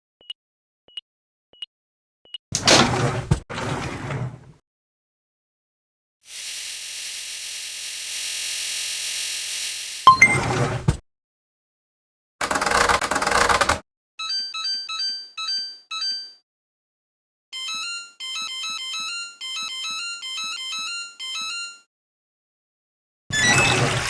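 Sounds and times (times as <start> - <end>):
electronic jingle: 10.1 - 10.5
washing machine beeps: 10.1 - 10.5, 14.2 - 16.4, 17.6 - 21.8.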